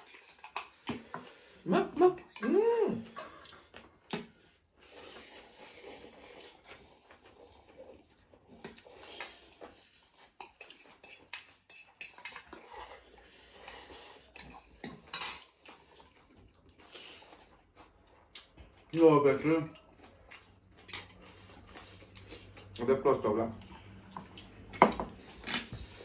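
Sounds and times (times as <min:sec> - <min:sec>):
cutlery clinking on dishes: 0:10.3 - 0:13.0, 0:14.4 - 0:15.7, 0:20.8 - 0:21.2.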